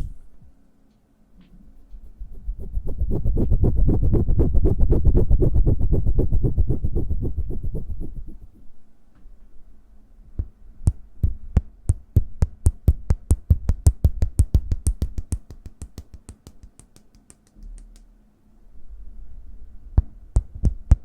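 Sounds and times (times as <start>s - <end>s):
hands tapping: 10.9s - 18.0s.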